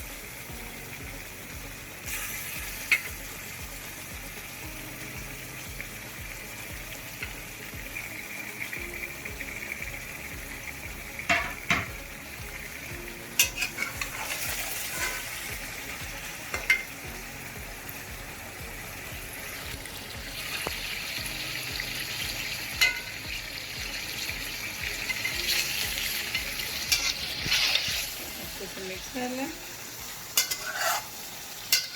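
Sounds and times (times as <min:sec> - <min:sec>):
food sizzling in hot oil: 0:00.0 - 0:31.9
spoon knocking against pot: 0:11.3 - 0:12.0, 0:22.8 - 0:23.1.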